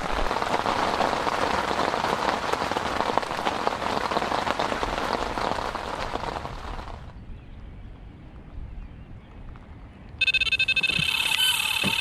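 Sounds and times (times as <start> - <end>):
close raindrop strikes: 0.0 - 7.2
heavy rain falling: 0.0 - 7.2.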